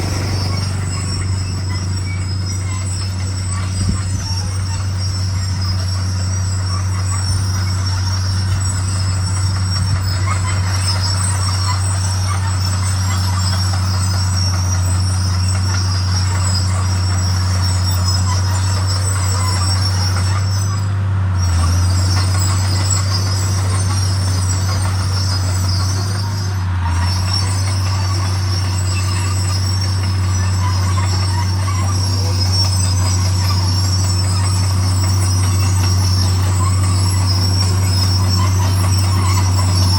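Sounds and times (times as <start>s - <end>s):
bulldozer diesel engine droning: 0.0s - 39.9s
steel tracks squealing and clattering: 0.0s - 39.9s.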